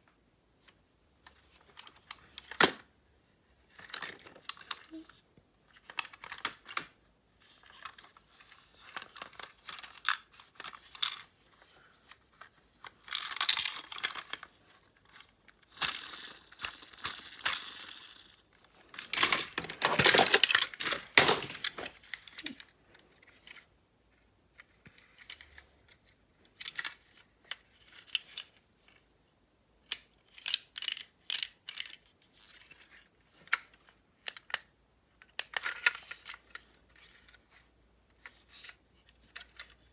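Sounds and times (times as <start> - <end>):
rustling and scraping: 18.6 - 28.3.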